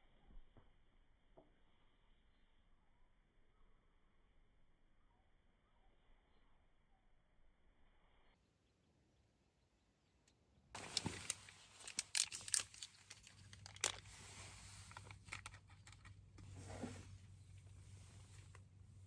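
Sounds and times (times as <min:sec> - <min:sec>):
rustling and crinkling: 0:10.8 - 0:19.0.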